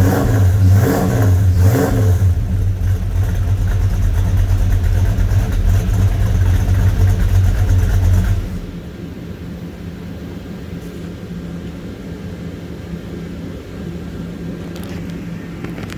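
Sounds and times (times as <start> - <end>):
car engine revving and idling: 0.0 - 9.0.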